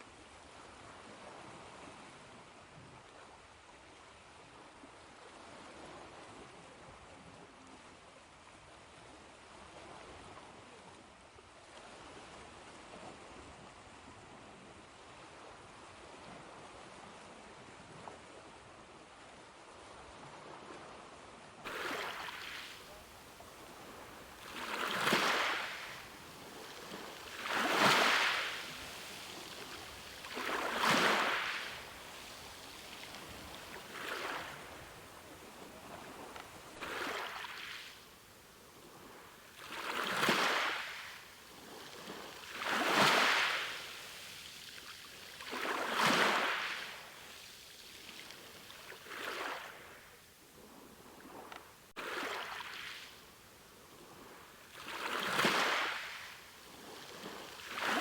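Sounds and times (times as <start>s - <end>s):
ocean waves surging: 21.7s - 37.9s.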